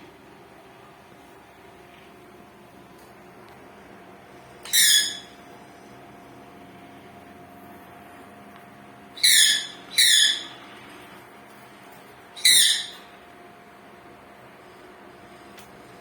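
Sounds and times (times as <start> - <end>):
parrot screeching: 4.6 - 5.4, 9.2 - 10.6, 12.4 - 13.1.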